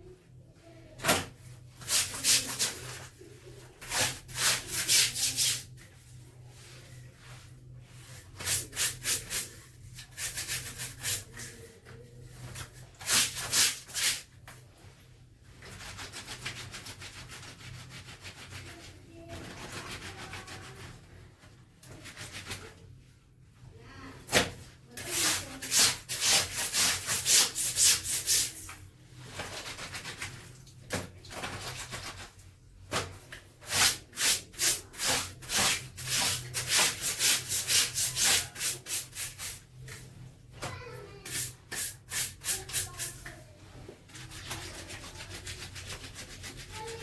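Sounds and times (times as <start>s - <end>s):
clothes scrubbed by hand: 1.6s - 14.3s, 15.6s - 22.9s, 24.4s - 47.0s.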